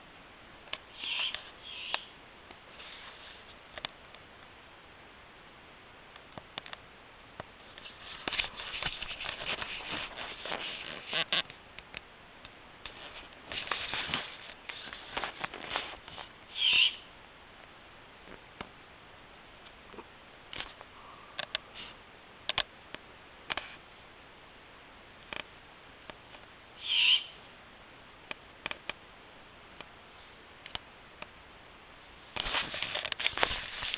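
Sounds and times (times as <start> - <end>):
owl hissing calls: 0.9 - 2.1, 16.5 - 17.1, 26.8 - 27.4.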